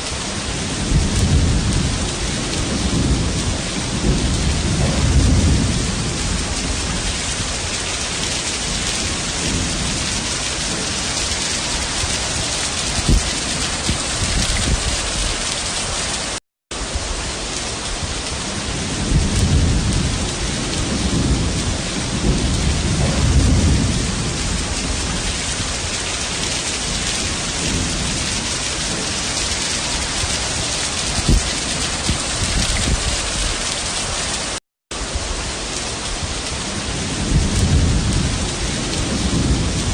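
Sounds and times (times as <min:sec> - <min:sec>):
heavy rain pouring: 0:00.0 - 0:39.9
low rumbling: 0:00.8 - 0:07.6, 0:19.0 - 0:25.8.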